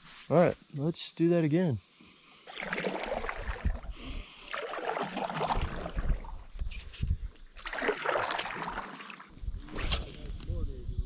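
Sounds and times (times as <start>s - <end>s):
water splashing around kayak: 2.5s - 6.6s, 7.5s - 9.4s.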